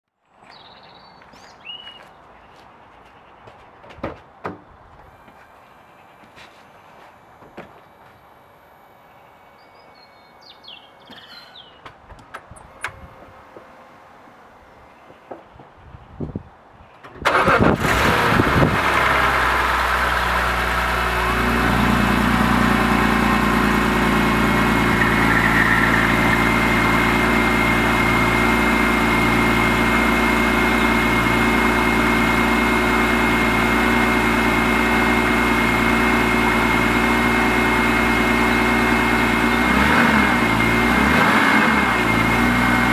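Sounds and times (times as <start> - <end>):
car engine starting and idling: 4.5 - 15.8, 16.9 - 42.9
thin high whine: 5.0 - 11.8, 22.9 - 28.0.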